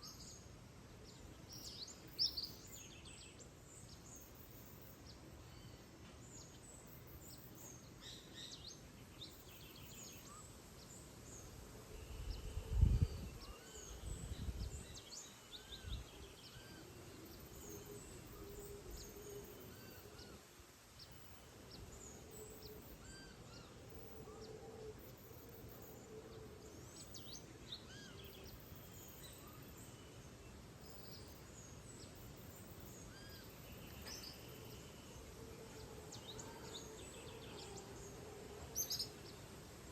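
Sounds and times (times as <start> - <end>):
birds chirping and calling: 11.3 - 39.5.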